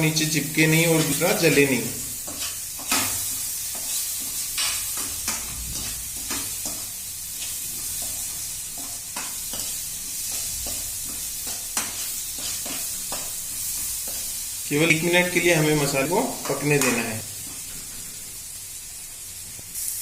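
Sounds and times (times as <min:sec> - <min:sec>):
masala sizzling in a pan: 0:00.0 - 0:20.0
spatula scraping and tapping pan: 0:00.9 - 0:14.4, 0:16.4 - 0:17.9.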